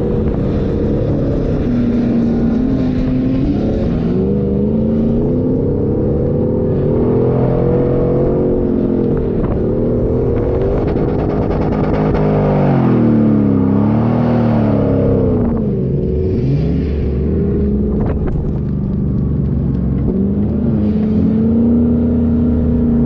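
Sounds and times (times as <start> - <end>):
car engine revving while driving: 0.0 - 23.0.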